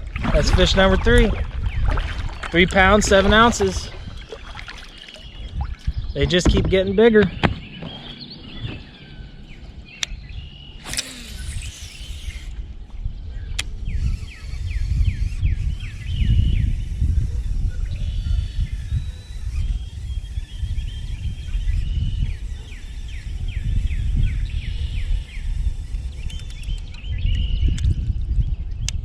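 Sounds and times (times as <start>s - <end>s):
wind buffeting microphone: 0.0s - 29.0s
songbird chirping: 1.2s - 12.2s.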